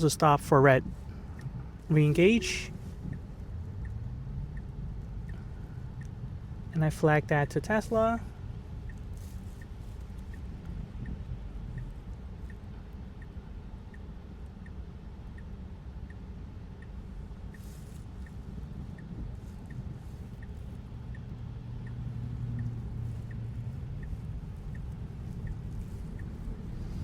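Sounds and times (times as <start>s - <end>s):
road noise rumble: 0.0s - 27.0s
turn signal ticking: 0.0s - 27.0s
low hum: 0.5s - 13.6s.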